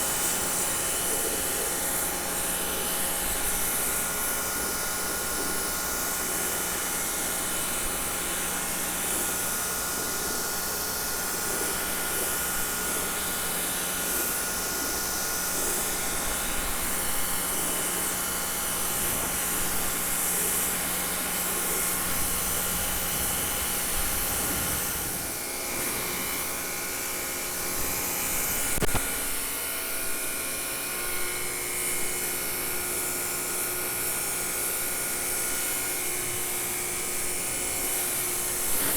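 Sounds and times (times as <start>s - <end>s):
pressure washer motor whine: 11.8s - 29.6s
water spray hissing: 18.8s - 26.8s.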